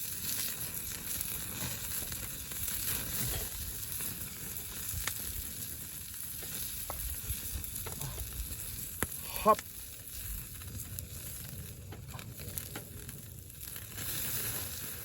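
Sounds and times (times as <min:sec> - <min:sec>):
fire popping and crackling: 0:00.0 - 0:15.0
fish sizzling on a campfire grill: 0:00.0 - 0:15.0.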